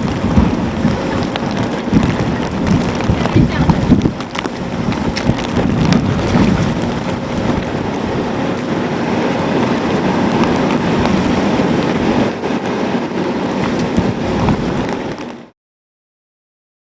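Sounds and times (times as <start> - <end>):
wind buffeting microphone: 0.0 - 15.5
wind and rain: 0.0 - 15.6.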